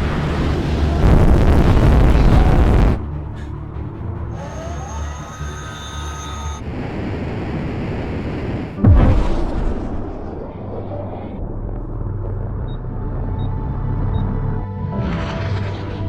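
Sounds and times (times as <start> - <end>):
loud rumbling boom: 0.0 - 3.1, 8.8 - 13.8
jet rushing roar: 0.0 - 3.6, 4.2 - 12.8.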